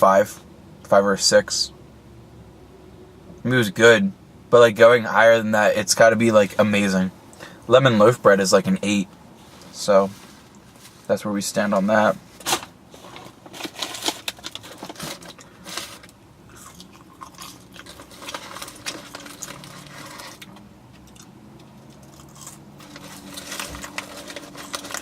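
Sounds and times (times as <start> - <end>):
small clicks and crunches: 12.4 - 25.0
person chewing food: 16.5 - 24.0.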